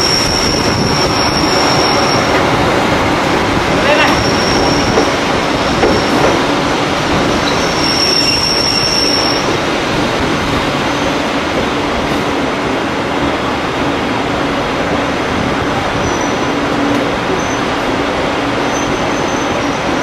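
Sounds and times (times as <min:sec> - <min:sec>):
high squeal: 0:00.0 - 0:02.4, 0:04.1 - 0:05.1, 0:07.4 - 0:09.5
train carriage rumbling on track: 0:00.0 - 0:20.0.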